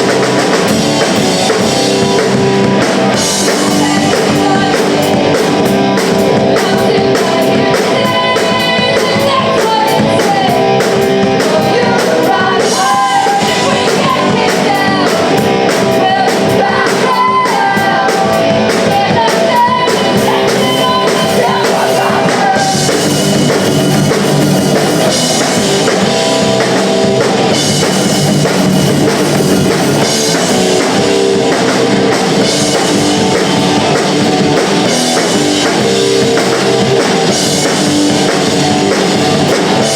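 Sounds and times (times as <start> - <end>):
punk rock band playing: 0.0 - 39.9
person singing: 2.2 - 23.4.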